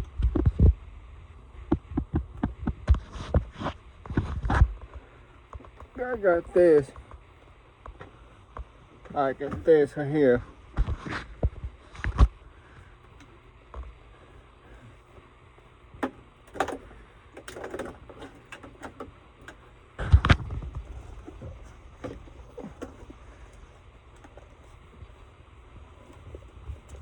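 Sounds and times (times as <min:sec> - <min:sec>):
clicks and knocks of handling: 0:16.0 - 0:25.1.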